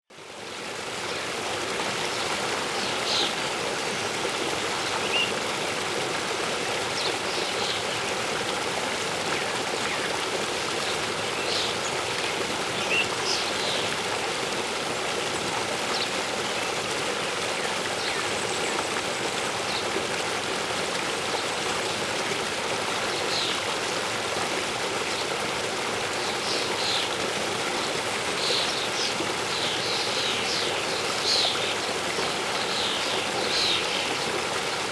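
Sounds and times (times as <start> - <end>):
waterfall rushing: 1.0 - 20.2.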